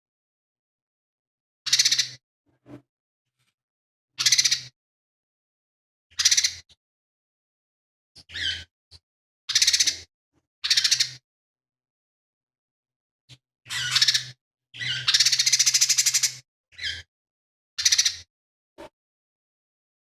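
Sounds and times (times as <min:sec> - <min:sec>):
bird harsh rattling calls: 0:01.7 - 0:02.2, 0:04.2 - 0:04.7, 0:06.1 - 0:06.6, 0:08.2 - 0:08.7, 0:09.5 - 0:11.2, 0:13.7 - 0:17.1, 0:17.8 - 0:18.3.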